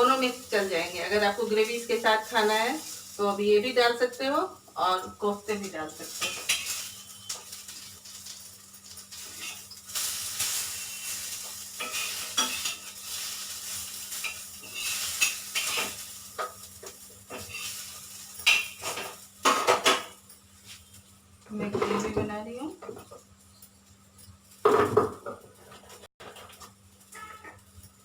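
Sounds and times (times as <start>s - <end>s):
oil sizzling in a pan: 0.0s - 21.5s
metal spoon scraping a pan: 6.0s - 7.8s, 9.1s - 20.0s.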